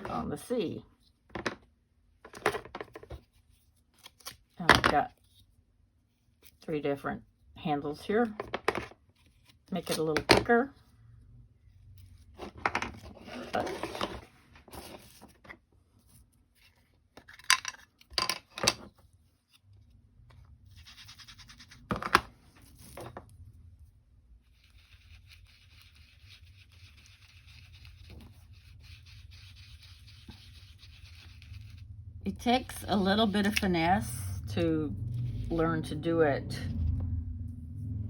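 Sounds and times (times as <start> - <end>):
foam tool rubbing on paper: 24.4 - 31.9.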